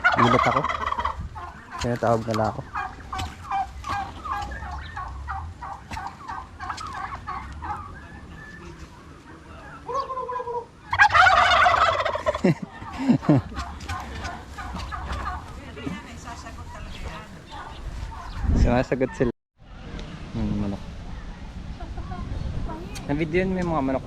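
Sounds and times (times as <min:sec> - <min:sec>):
turkeys gobbling: 0:00.0 - 0:18.4.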